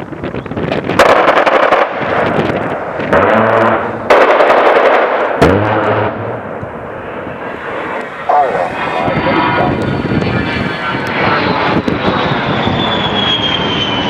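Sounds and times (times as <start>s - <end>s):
jet engine noise: 0.0s - 14.0s
rotary cannon firing bursts: 0.9s - 6.4s.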